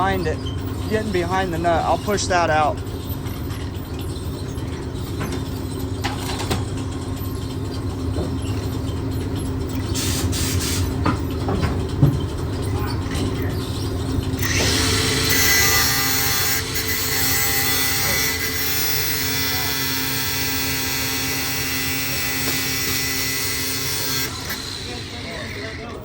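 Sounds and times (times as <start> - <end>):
angle grinder cutting metal: 14.4 - 26.0.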